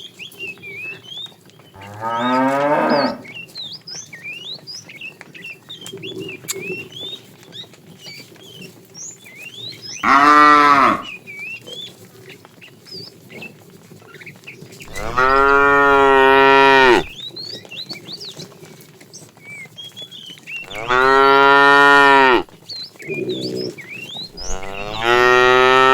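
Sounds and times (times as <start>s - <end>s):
cattle mooing: 1.8s - 3.3s, 10.0s - 11.1s, 14.9s - 17.2s, 20.6s - 22.5s, 24.3s - 25.9s.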